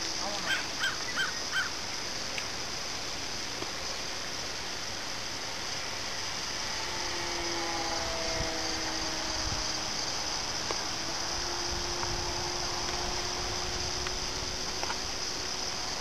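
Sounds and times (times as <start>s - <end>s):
steady hiss: 0.0s - 16.0s
bird calling: 0.2s - 1.8s
model plane motor hum: 3.8s - 16.0s.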